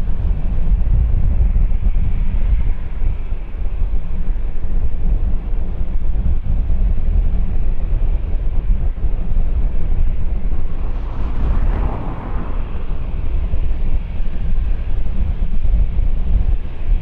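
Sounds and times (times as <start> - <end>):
wind buffeting microphone: 5.0 - 17.0
jet engines rumbling: 8.7 - 15.6.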